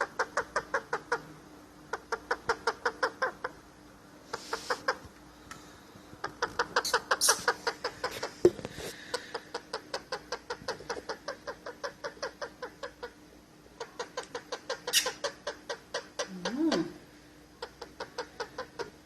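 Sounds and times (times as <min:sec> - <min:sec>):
parrot repeated calls: 0:13.8 - 0:17.0.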